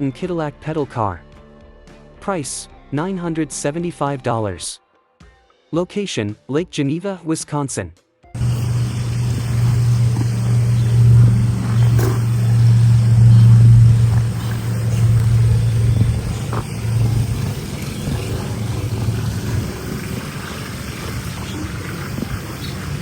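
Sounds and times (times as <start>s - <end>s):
low engine-like hum: 8.4s - 23.0s.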